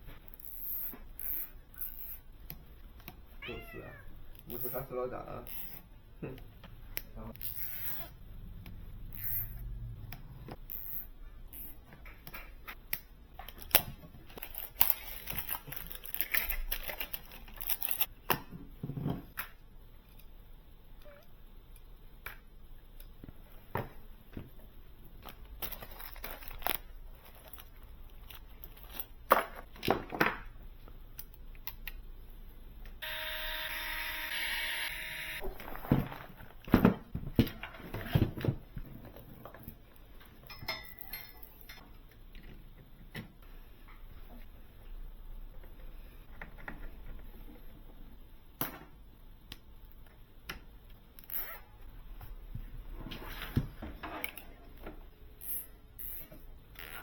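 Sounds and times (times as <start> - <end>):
steady whirring tone: 33.0 - 35.4.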